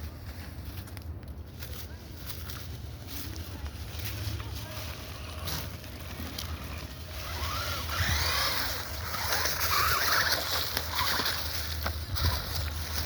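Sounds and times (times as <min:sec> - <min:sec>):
small electric motor whining: 0:06.8 - 0:13.0
wind rumble on microphone: 0:11.8 - 0:13.0.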